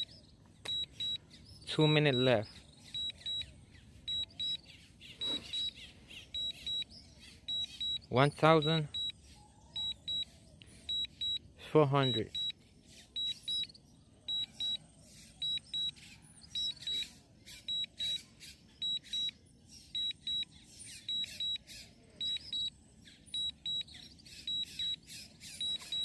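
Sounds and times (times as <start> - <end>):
short high beeps: 0.7 - 1.2, 4.1 - 4.6, 5.2 - 5.8, 12.0 - 12.6, 25.6 - 26.0.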